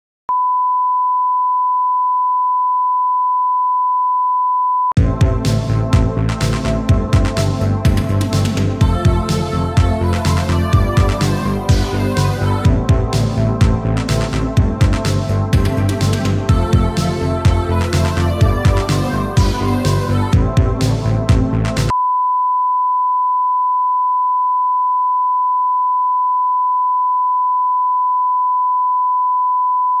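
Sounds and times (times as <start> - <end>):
sine-wave test tone: 0.3 - 5.0, 21.9 - 30.0
electronic music with heavy beat: 5.0 - 21.9.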